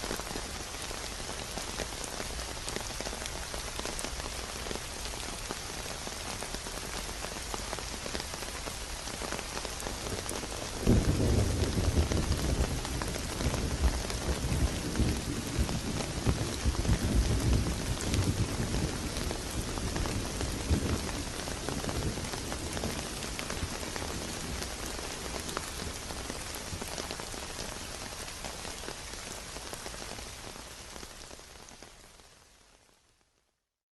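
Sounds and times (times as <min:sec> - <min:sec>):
rain pattering: 0:00.0 - 0:33.4
thunder rumbling: 0:10.8 - 0:26.9.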